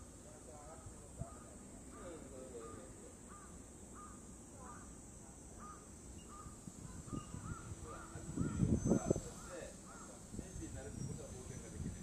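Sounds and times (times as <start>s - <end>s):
steady high hiss: 0.0s - 12.0s
bird calling in arched notes: 1.3s - 11.6s.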